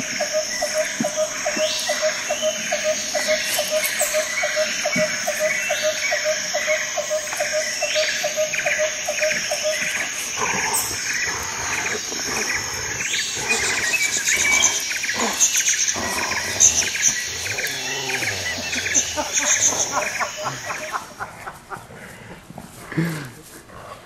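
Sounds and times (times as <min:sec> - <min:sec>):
high chirping: 0:00.3 - 0:21.2
dog growling: 0:09.8 - 0:21.0.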